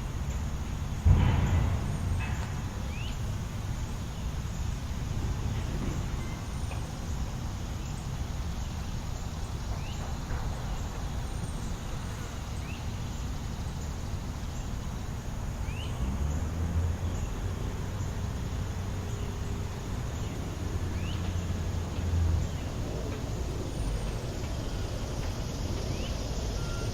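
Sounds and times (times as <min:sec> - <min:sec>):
city traffic rumble: 0:00.0 - 0:26.9.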